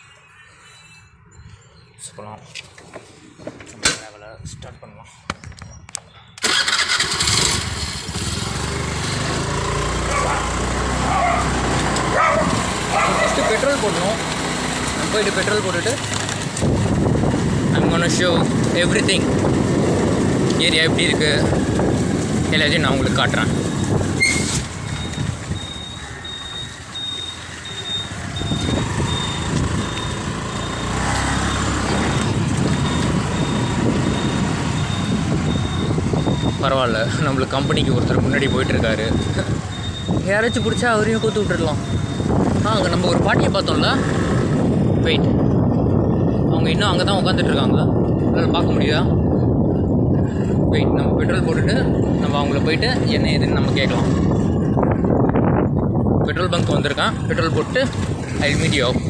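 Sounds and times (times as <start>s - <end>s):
road noise: 0.0s - 59.0s
motorbike engine starting and idling: 6.4s - 46.5s
high electronic beep: 23.3s - 43.3s.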